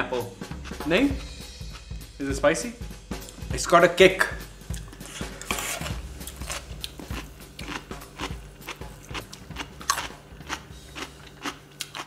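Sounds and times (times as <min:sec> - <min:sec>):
crisp crunches of chewing: 0:04.8 - 0:12.0.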